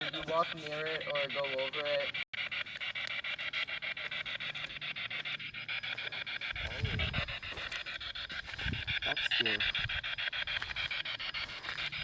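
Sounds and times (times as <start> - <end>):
pulsing radio static: 0.0 - 12.0.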